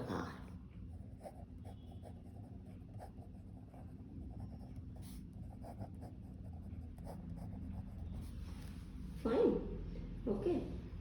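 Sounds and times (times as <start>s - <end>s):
low background hum: 0.0s - 11.0s
pen scratching on paper: 1.0s - 8.4s.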